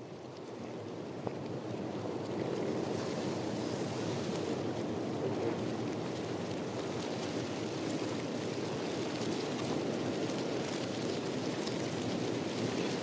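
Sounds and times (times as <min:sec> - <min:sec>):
steady rain hiss: 0:02.8 - 0:05.0.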